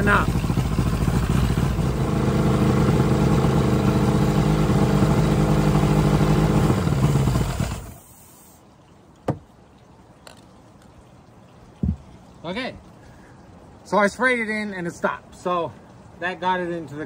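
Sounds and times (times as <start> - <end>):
outboard motor running and stalling: 0.0 - 8.1.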